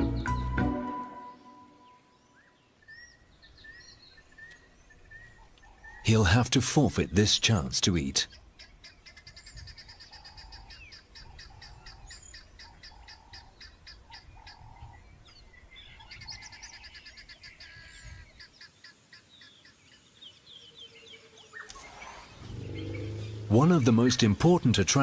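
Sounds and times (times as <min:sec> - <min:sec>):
lower bird call: 0:21.4 - 0:24.0.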